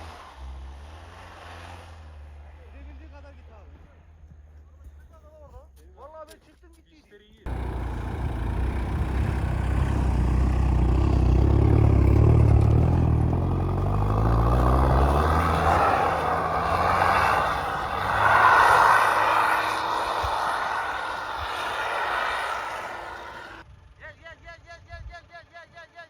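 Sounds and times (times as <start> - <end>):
tyres churning through snow: 0.0 - 3.7, 7.5 - 23.6
pickup engine droning under load: 7.5 - 23.6.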